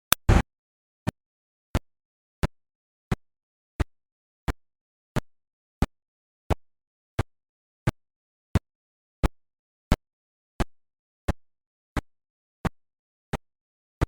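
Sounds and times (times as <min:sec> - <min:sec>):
short sharp clicks: 0:00.0 - 0:00.4.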